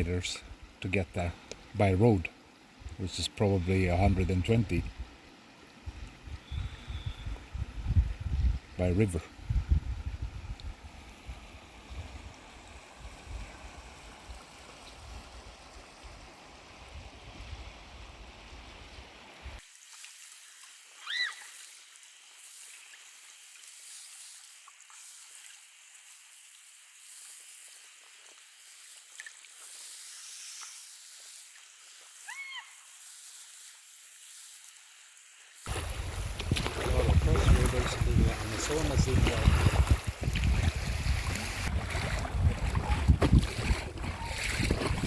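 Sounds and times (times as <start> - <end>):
moving water hiss: 0.0 - 7.9, 10.1 - 45.0
wind noise: 5.9 - 12.3, 35.7 - 45.0.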